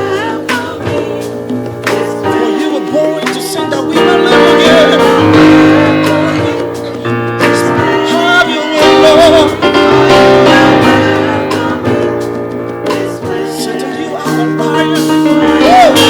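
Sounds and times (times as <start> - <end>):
guitar chords: 0.0 - 16.0
keyboard chords: 0.0 - 16.0
person singing: 0.0 - 16.0
bass line: 3.7 - 13.5.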